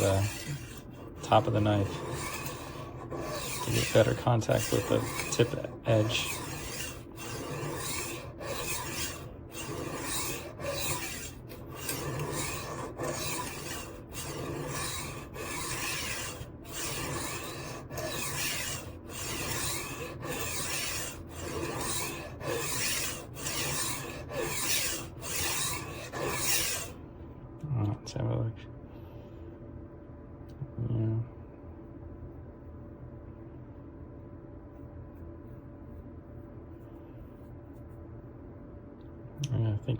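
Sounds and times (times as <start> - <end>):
knife sharpener grinding blade: 0.0 - 26.9.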